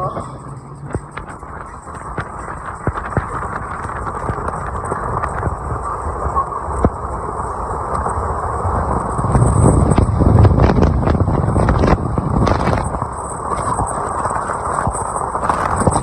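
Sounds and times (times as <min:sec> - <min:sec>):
boat engines droning: 0:00.0 - 0:16.0
wind buffeting microphone: 0:00.0 - 0:16.0.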